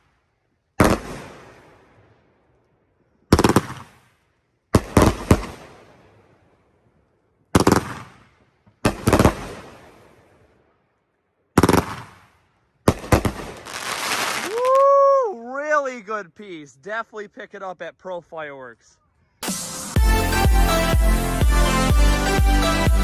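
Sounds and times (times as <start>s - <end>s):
firework crackle and echo: 0.0s - 15.0s
firework cake firing volleys: 3.3s - 4.2s, 7.6s - 10.3s, 11.6s - 14.7s.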